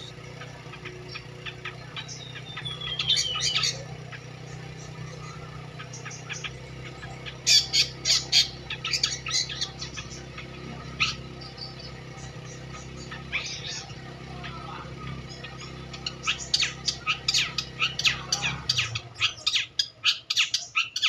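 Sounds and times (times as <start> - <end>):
bird singing: 0.0 - 21.0
steady low hum: 0.0 - 21.0.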